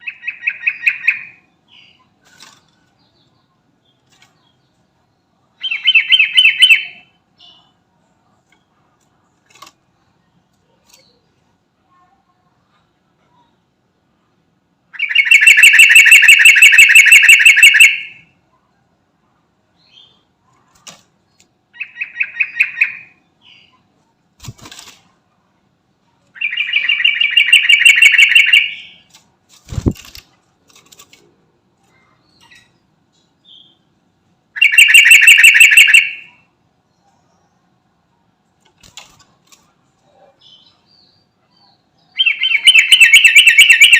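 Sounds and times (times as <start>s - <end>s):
bird singing rapid notes: 15.0s - 18.2s, 26.4s - 29.1s, 34.6s - 36.3s, 42.0s - 43.9s.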